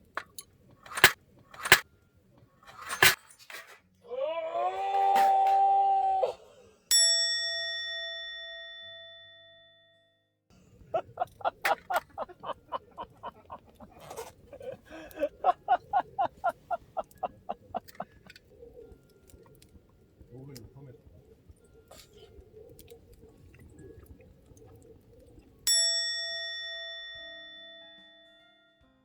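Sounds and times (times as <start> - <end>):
quick evenly paced clicks: 0.0 - 1.8
bell-like ding: 6.9 - 9.9.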